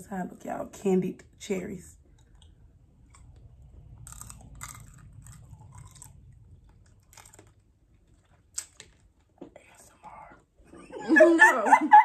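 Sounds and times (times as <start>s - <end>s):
crunching hard candy: 2.2s - 10.0s.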